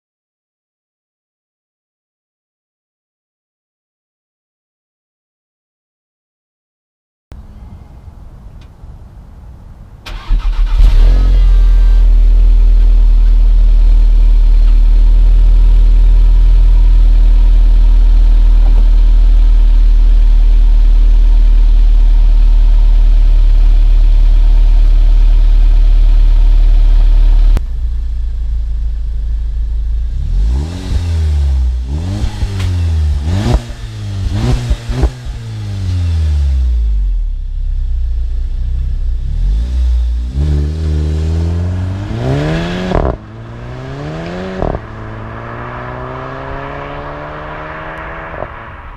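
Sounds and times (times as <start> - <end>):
car engine idling: 7.4 - 47.9
car engine starting: 7.4 - 48.9
engine revving: 10.1 - 27.9, 28.7 - 37.2, 38.7 - 48.9.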